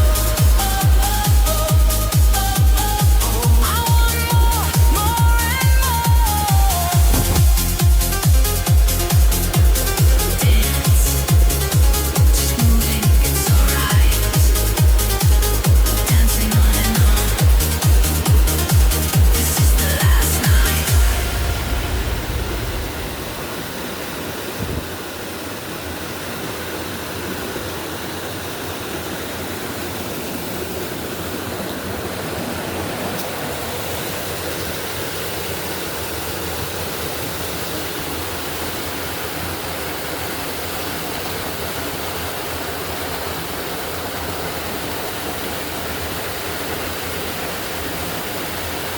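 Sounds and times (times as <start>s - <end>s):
electronic dance music: 0.0s - 22.0s
steady rushing noise: 6.4s - 28.5s.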